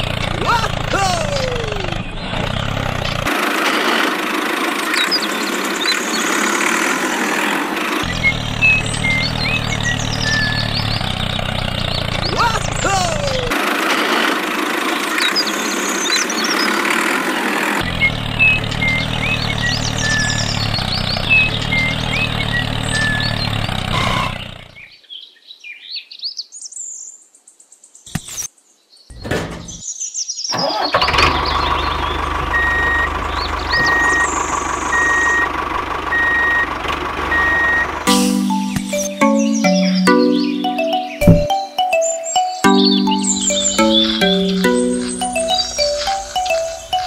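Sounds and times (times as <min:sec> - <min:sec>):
tractor engine running: 0:00.0 - 0:24.7, 0:29.1 - 0:29.8, 0:30.7 - 0:40.2
birds chirping: 0:04.7 - 0:13.5, 0:37.4 - 0:47.0
evenly spaced beeps: 0:38.1 - 0:47.0.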